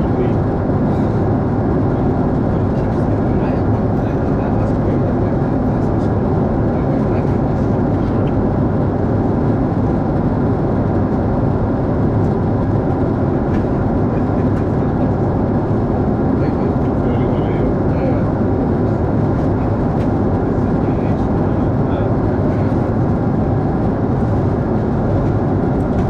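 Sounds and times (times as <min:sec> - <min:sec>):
airliner cabin rumble: 0:00.0 - 0:26.0.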